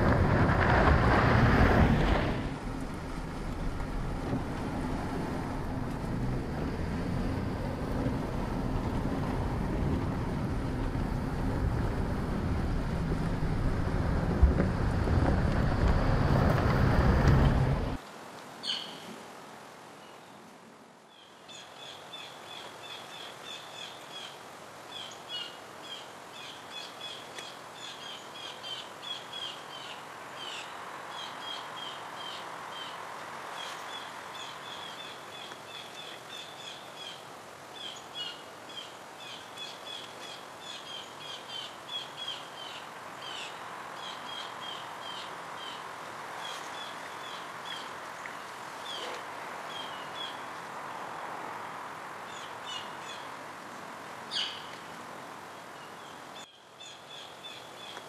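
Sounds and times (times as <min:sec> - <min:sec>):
outdoor background noise: 0:00.0 - 0:58.0
small birds chirping: 0:54.3 - 0:54.9.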